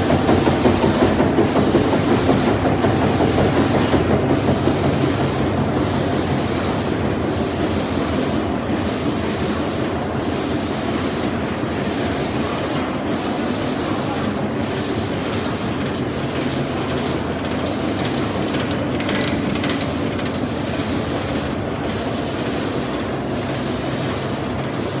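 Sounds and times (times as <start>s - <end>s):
machine clattering: 0.0s - 6.6s, 12.5s - 25.0s
rapid clicking: 14.2s - 21.5s.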